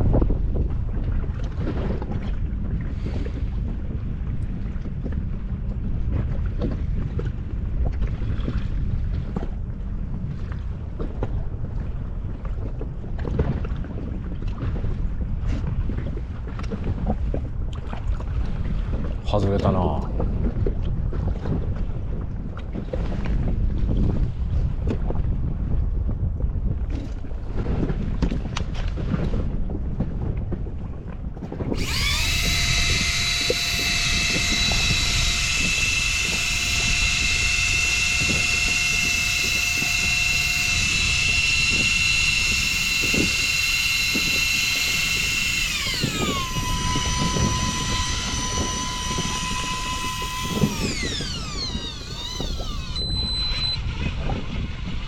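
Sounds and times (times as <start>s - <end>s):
wind: 0.0s - 55.0s
small electric motor whining: 31.6s - 54.1s
water noise: 31.6s - 54.3s.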